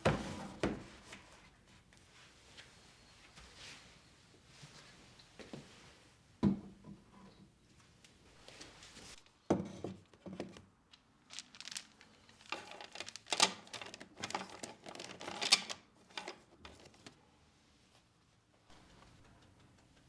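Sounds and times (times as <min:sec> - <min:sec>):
packaging crinkling and rustling: 0:11.0 - 0:17.0.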